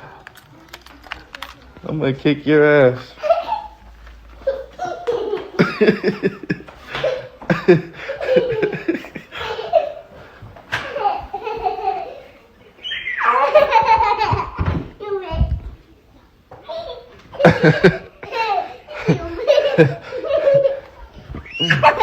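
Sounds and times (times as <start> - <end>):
people laughing: 4.4 - 10.2, 13.2 - 14.7, 17.3 - 22.0.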